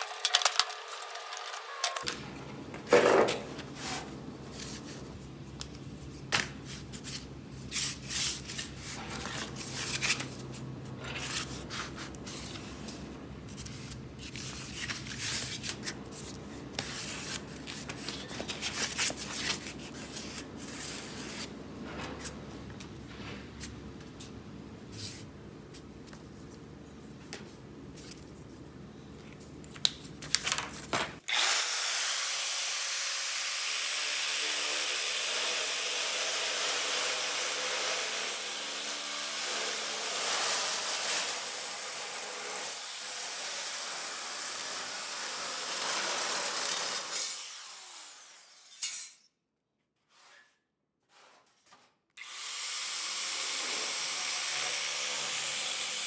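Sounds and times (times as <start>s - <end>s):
power tool on sheet metal: 0.0s - 2.1s, 31.3s - 49.1s, 52.2s - 56.0s.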